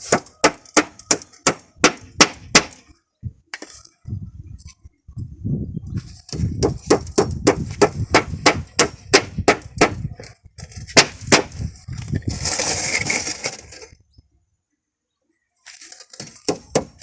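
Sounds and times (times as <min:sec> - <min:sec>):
hammer striking nails into rubber: 0:00.1 - 0:02.8, 0:06.6 - 0:10.0, 0:11.0 - 0:11.6, 0:16.2 - 0:17.0
scraping and rustling: 0:09.6 - 0:14.0, 0:15.6 - 0:17.0.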